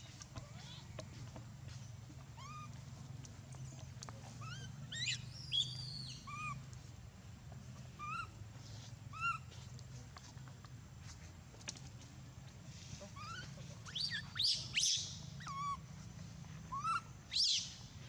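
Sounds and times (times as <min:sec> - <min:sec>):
baby monkey squeaking: 0:02.4 - 0:02.7, 0:04.4 - 0:06.6, 0:08.0 - 0:08.3, 0:09.1 - 0:09.4, 0:13.1 - 0:15.8, 0:16.7 - 0:17.7.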